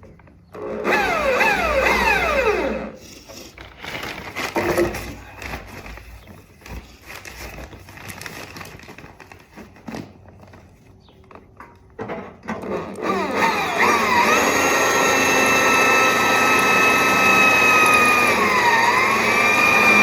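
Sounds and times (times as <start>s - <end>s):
power drill whining: 0.5s - 5.2s, 12.5s - 20.0s.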